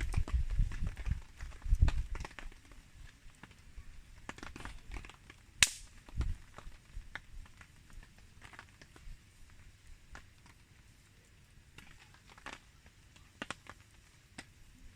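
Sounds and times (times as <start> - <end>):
wood campfire crackling: 0.0 - 14.9
loud sharp pop of fire: 5.6 - 6.7.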